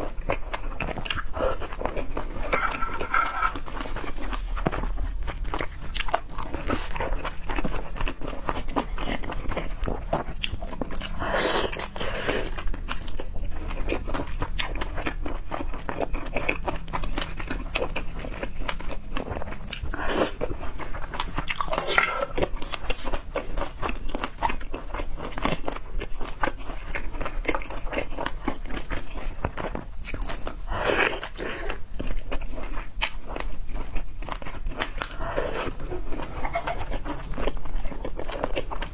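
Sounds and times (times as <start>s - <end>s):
crunching and chewing food: 0.0s - 38.9s.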